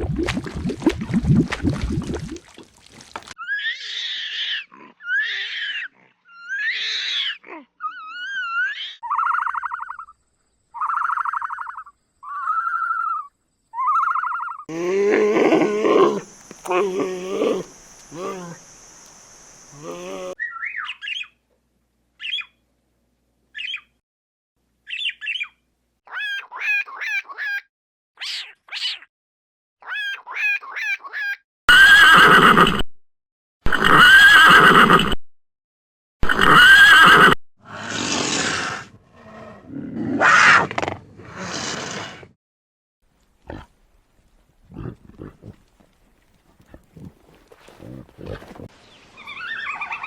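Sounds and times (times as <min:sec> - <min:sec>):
animal chirping calls: 0:03.4 - 0:10.2, 0:10.8 - 0:14.7, 0:49.2 - 0:50.0.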